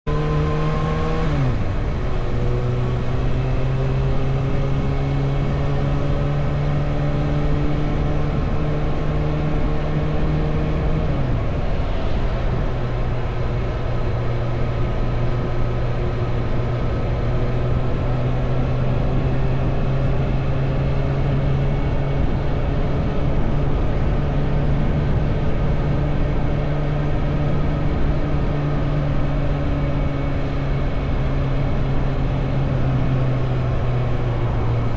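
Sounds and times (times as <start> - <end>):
wind and road noise: 0.1 - 34.9.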